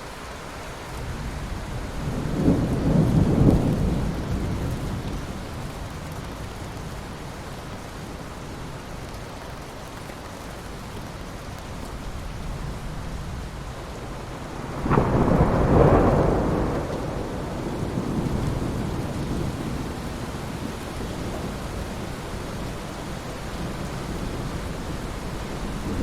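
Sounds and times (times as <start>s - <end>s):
steady rain: 0.0s - 26.0s
thunder rumbling: 1.3s - 6.0s, 14.4s - 22.8s, 23.4s - 26.0s.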